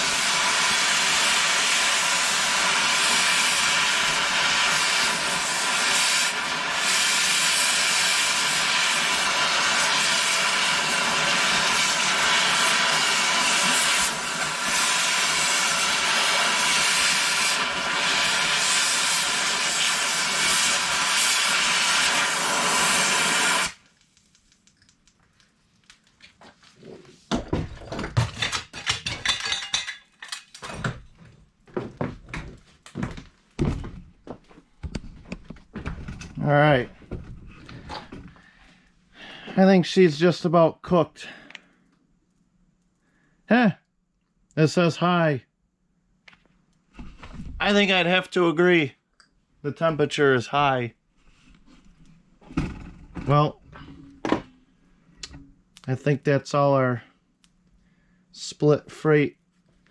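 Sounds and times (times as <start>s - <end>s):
loud air hiss: 0.0s - 23.8s
pneumatic angle grinder whine: 0.0s - 23.8s
knocks and clatter: 27.3s - 34.1s.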